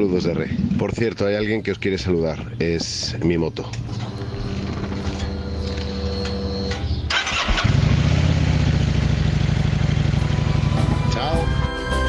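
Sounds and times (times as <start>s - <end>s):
motorcycle engine running: 3.9s - 11.7s.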